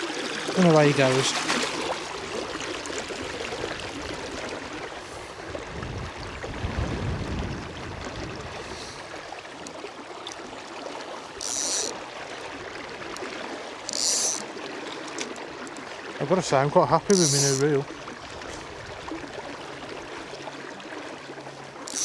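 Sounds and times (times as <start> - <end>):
river water flowing: 0.0 - 22.0
wind rumble on microphone: 2.1 - 9.3.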